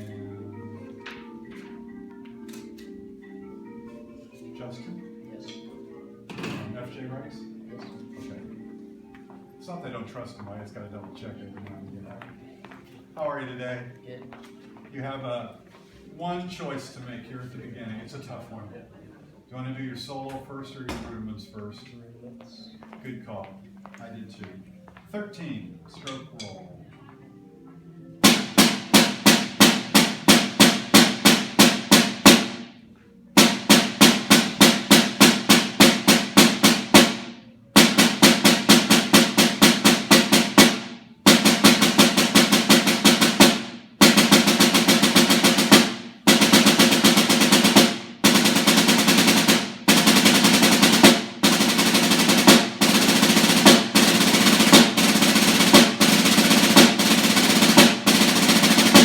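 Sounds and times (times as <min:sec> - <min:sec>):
snare drum roll: 0:28.2 - 0:32.7, 0:33.4 - 0:59.0.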